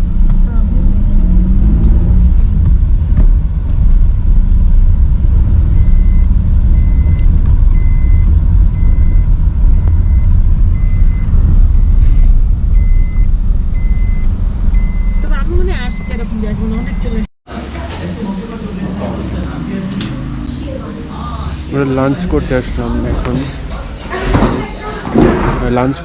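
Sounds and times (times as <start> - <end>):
vehicle engine and road rumble: 0.0 - 24.4
electronic beeps: 5.7 - 17.3.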